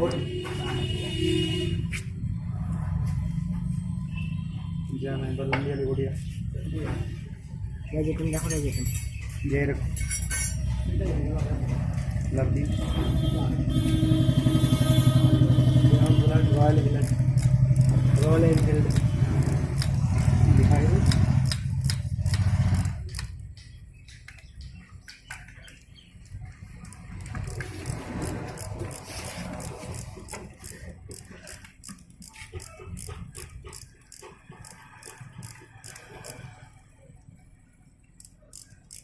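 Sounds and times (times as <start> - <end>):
loud low vehicle engine rumble: 10.7 - 24.0
metallic clicks of hand tools: 17.0 - 36.4, 38.2 - 39.0.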